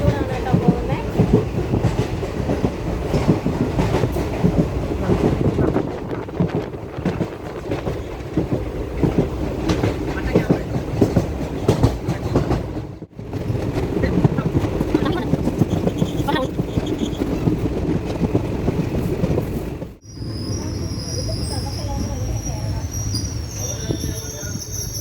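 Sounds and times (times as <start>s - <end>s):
wheels clattering over rails: 0.0s - 20.0s
train rumbling along track: 0.0s - 25.0s.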